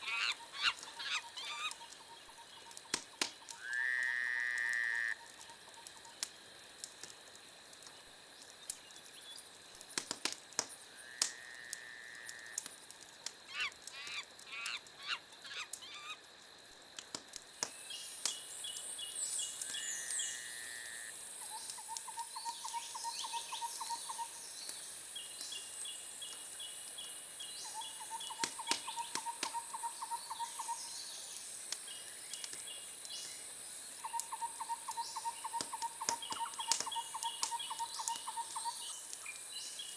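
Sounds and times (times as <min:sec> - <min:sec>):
chirping calls and pulsed trills: 0:00.0 - 0:03.7, 0:21.4 - 0:24.4, 0:27.6 - 0:31.0, 0:34.0 - 0:39.5
wood fire crackling and popping: 0:00.4 - 0:03.9, 0:04.5 - 0:15.0, 0:16.6 - 0:20.2, 0:24.6 - 0:27.2, 0:28.2 - 0:29.8, 0:31.3 - 0:39.9.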